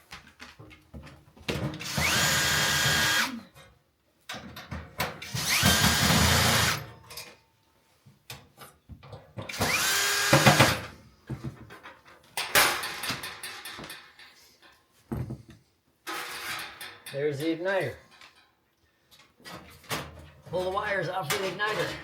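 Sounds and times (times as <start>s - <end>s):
power drill whining: 1.8s - 3.5s, 5.2s - 6.9s, 9.5s - 10.9s.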